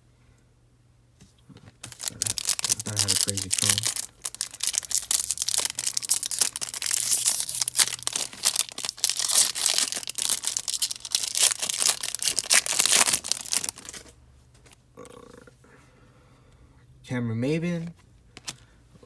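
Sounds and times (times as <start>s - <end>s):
plastic wrapper crinkling and tearing: 1.8s - 14.2s.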